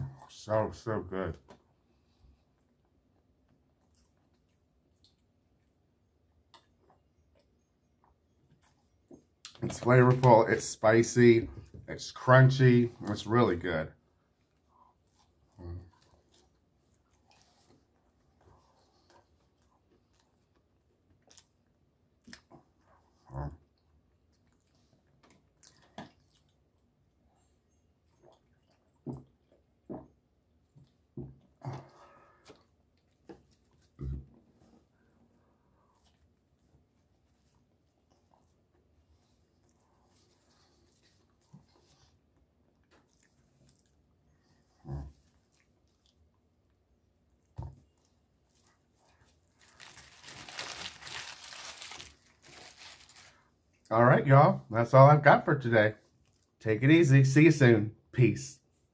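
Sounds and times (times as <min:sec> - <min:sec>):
person chewing: 0:18.9 - 0:23.2, 0:24.2 - 0:26.9, 0:30.7 - 0:34.2
person chewing crunchy food: 0:48.0 - 0:53.4.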